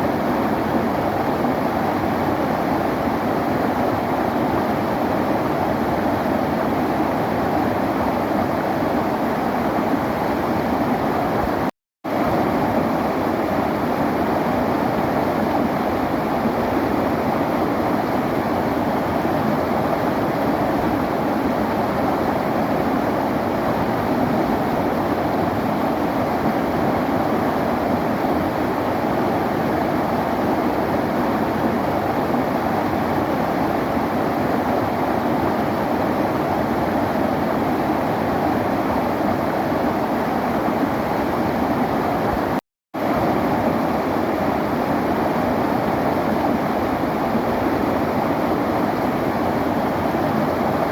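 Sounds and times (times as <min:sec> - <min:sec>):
river water rushing: 0:00.2 - 0:50.9.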